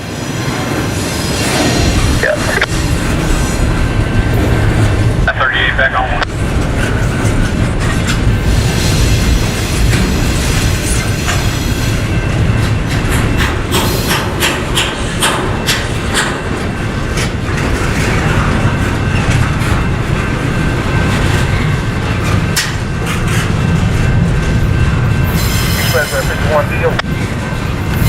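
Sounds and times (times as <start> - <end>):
freight train rumbling past: 0.0 - 28.0
wheels clacking over rail joints: 6.2 - 26.2.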